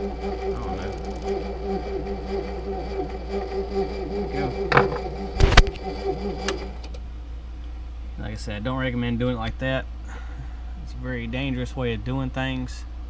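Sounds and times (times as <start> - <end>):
electric motor humming: 0.0 - 7.0.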